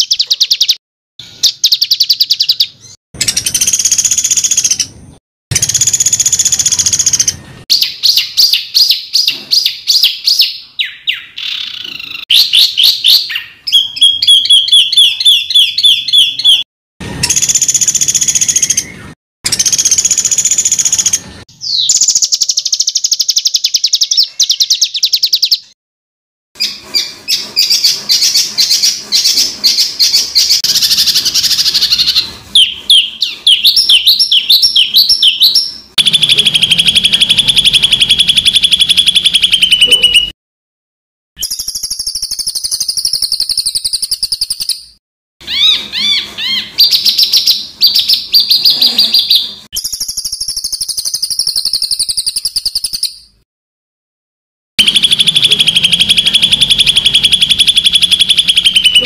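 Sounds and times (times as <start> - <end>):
harsh trilled bird bursts: 26.6 - 40.3, 54.8 - 59.0.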